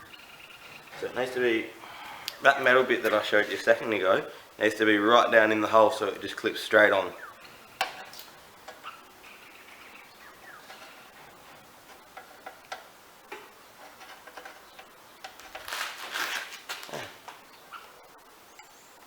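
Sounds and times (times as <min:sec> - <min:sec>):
scraping rustle: 0:10.6 - 0:12.9, 0:13.7 - 0:17.4.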